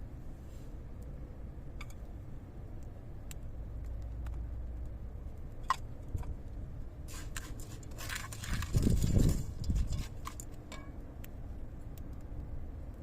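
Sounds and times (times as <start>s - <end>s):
low rumble of wind: 0.0s - 13.0s
small clicks and crackles: 1.8s - 13.0s.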